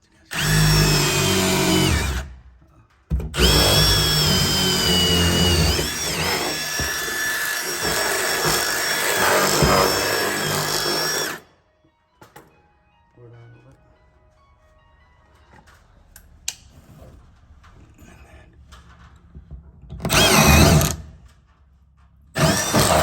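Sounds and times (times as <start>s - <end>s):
power drill boring into ceiling: 0.3s - 2.4s, 3.4s - 11.4s, 20.1s - 21.1s, 22.4s - 23.0s.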